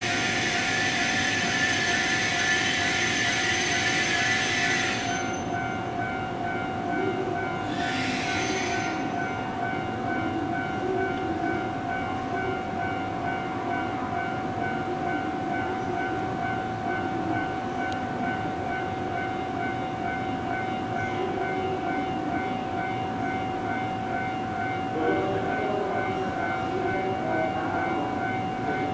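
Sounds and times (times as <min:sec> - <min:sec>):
electric train humming: 0:00.0 - 0:28.9.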